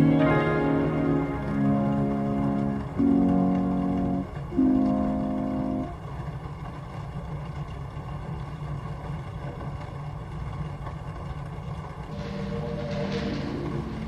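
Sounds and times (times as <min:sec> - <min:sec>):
held organ chord: 0:00.0 - 0:06.0
steady rain: 0:00.0 - 0:14.0.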